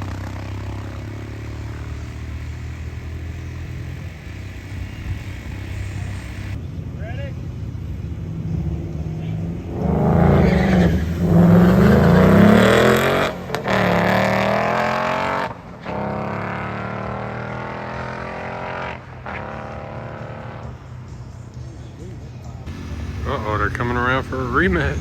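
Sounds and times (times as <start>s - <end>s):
car engines revving hard: 0.0s - 6.6s, 8.0s - 21.2s, 22.7s - 25.0s.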